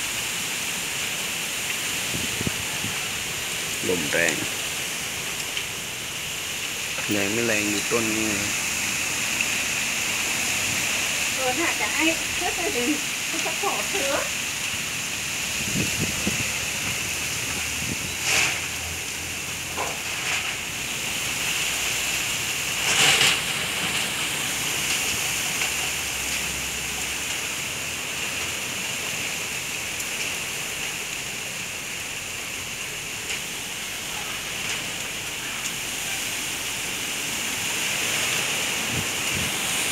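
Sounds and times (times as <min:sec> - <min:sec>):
strong storm wind rushing: 0:02.0 - 0:04.6, 0:15.4 - 0:18.3, 0:37.9 - 0:39.9.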